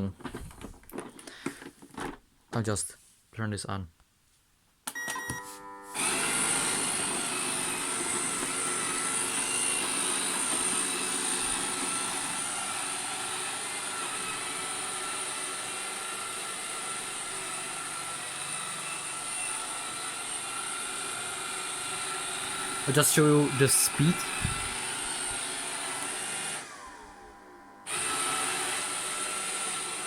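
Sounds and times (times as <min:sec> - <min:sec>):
robot vacuum motor whirring: 0:06.0 - 0:30.0.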